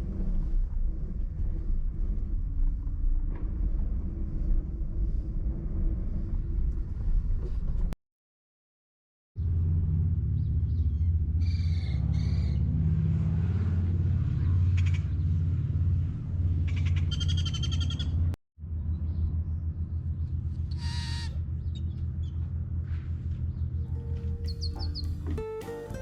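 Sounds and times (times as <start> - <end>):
steady low rumble: 0.0 - 8.0, 9.4 - 26.0
bird trill: 16.7 - 18.2, 20.7 - 22.4, 23.9 - 25.4
short high bird calls: 20.7 - 21.4.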